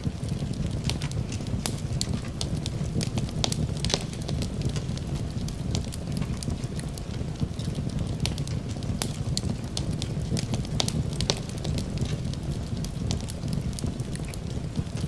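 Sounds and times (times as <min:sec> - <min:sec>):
rain: 0:00.0 - 0:15.0
wood fire crackling and popping: 0:00.0 - 0:15.0.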